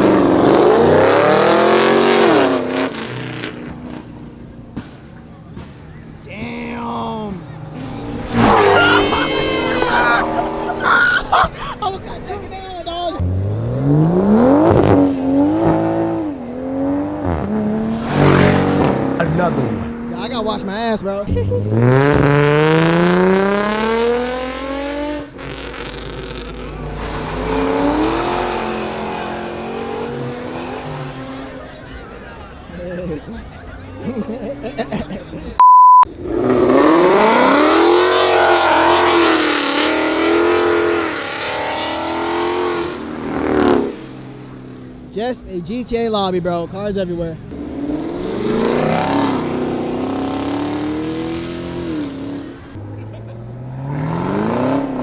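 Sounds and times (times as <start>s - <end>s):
car engine accelerating: 0.0s - 12.2s, 13.2s - 32.6s, 36.1s - 45.2s, 47.3s - 55.0s
short high beep: 8.3s - 10.6s, 35.6s - 36.1s.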